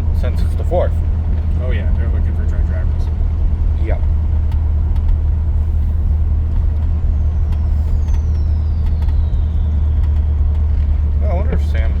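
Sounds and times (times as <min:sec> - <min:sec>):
pickup engine droning while cruising: 0:00.0 - 0:12.0
faint falling whistle: 0:06.7 - 0:10.9.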